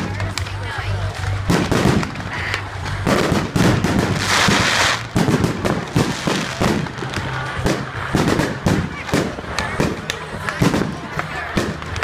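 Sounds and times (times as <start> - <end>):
fireworks bangs: 1.2 - 12.0
fireworks crackling hiss: 3.1 - 10.0.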